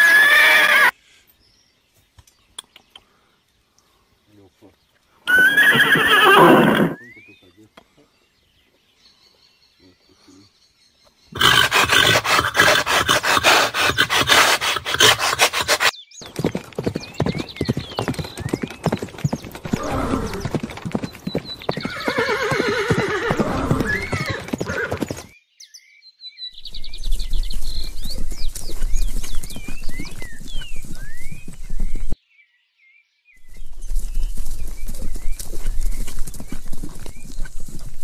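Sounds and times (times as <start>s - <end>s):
horse whinny: 0.0s - 0.9s, 5.3s - 7.0s, 11.4s - 15.9s, 19.6s - 21.1s, 21.7s - 25.3s
birds chirping: 0.0s - 38.0s
horse hooves beating: 11.4s - 25.3s, 27.1s - 32.2s, 33.5s - 38.0s.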